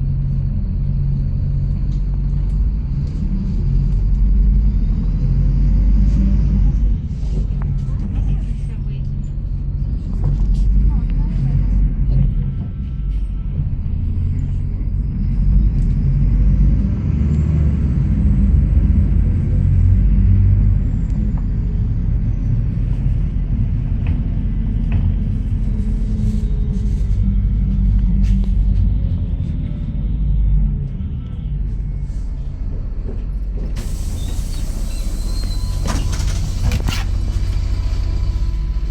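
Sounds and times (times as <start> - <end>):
bus engine and road rumble: 0.0 - 38.9
air hiss: 33.8 - 36.6.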